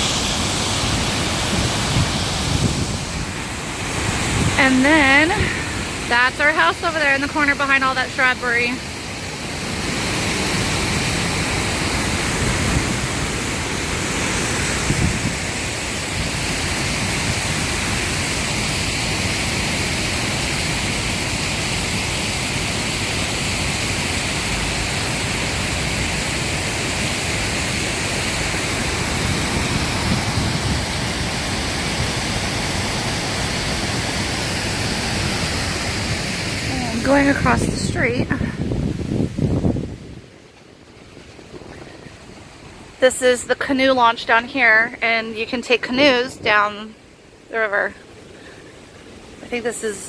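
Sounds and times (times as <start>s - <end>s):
waterfall pouring into pool: 15.4s - 36.7s.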